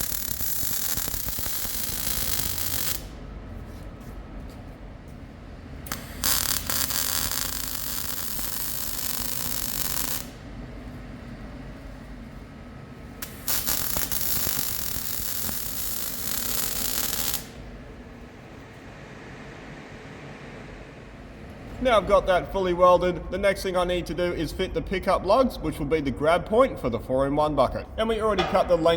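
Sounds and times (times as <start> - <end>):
welder crackling hiss: 0.0 - 3.2, 5.9 - 10.4, 13.2 - 17.7
welding arc strike: 0.0 - 3.3, 5.8 - 10.5, 13.2 - 18.0.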